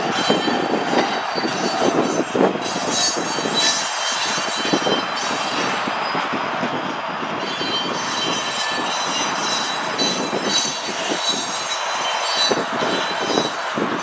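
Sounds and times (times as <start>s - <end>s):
train rumble: 0.0s - 14.0s
wheels squealing on rails: 0.0s - 14.0s.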